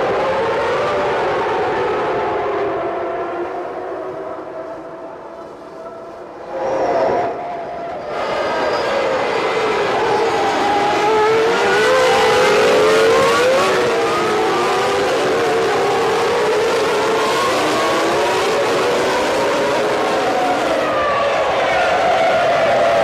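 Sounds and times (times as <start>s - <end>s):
racing car engines at high revs: 8.0s - 23.0s.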